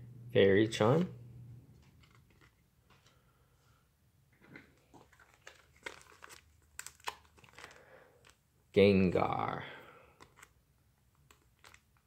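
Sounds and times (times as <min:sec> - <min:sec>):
card pack crinkling: 0:01.8 - 0:03.1, 0:04.8 - 0:08.4, 0:10.1 - 0:12.0.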